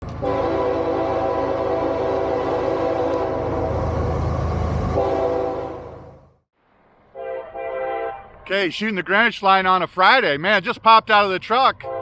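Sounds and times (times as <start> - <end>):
locomotive horn blasts: 0.0 - 3.8, 4.9 - 6.2, 7.1 - 8.4, 11.7 - 12.0
diesel locomotive rumble: 0.0 - 6.4.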